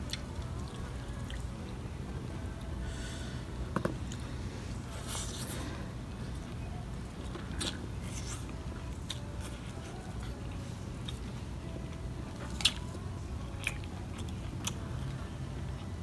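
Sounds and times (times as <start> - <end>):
chewing and biting food: 12.3 - 16.0.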